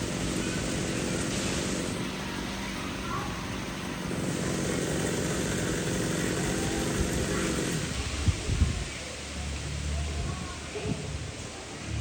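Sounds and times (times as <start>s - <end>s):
chainsaw engine running: 0.0s - 8.2s.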